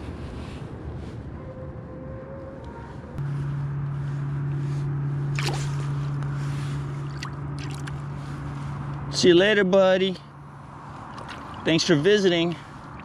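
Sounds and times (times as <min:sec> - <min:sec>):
boat motor humming: 0:01.8 - 0:13.0
water splash: 0:05.3 - 0:05.8, 0:07.0 - 0:07.9.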